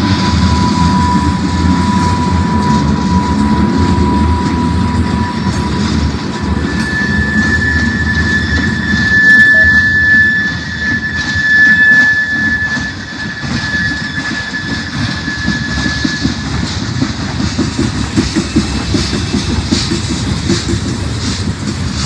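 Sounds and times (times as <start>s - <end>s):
high steady whine: 0.0s - 16.5s
train wheels clicking on rails: 0.0s - 22.0s.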